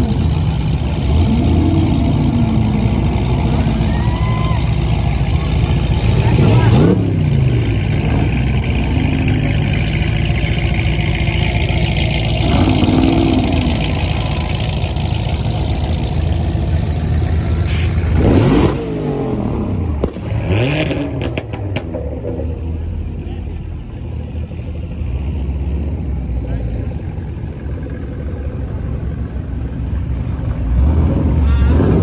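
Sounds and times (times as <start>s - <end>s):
car engine revving loudly: 0.0s - 3.9s, 5.4s - 16.6s, 17.7s - 22.4s.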